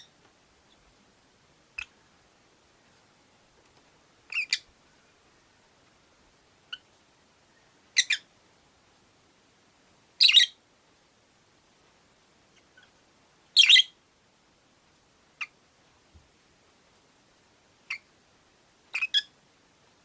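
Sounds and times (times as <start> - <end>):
lovebirds shrill calls: 4.3 - 4.7, 7.9 - 8.3, 10.2 - 10.6, 13.6 - 14.0, 18.9 - 19.3.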